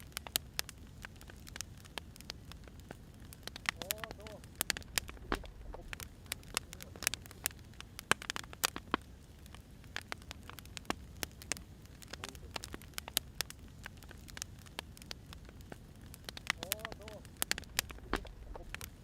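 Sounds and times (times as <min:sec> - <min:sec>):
wood fire crackling: 0:00.0 - 0:19.0
low rumble: 0:04.5 - 0:06.3, 0:17.5 - 0:19.0.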